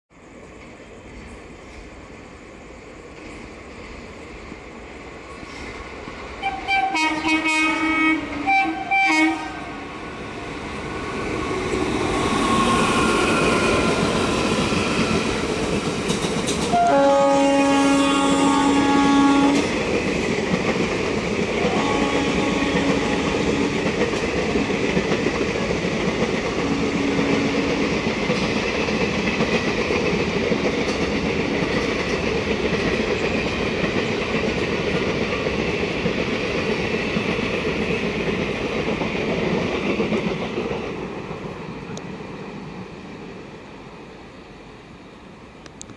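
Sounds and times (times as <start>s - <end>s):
train passing at speed: 0.1s - 45.9s
locomotive horn blasts: 6.4s - 9.8s, 16.7s - 19.6s, 21.6s - 23.8s.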